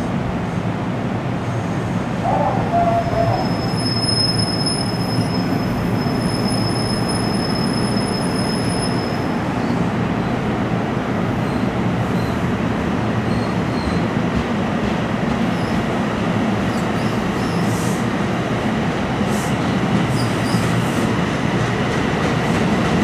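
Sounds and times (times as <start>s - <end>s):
train wheels rumbling on track: 0.0s - 23.0s
high thin squeal: 2.8s - 9.2s.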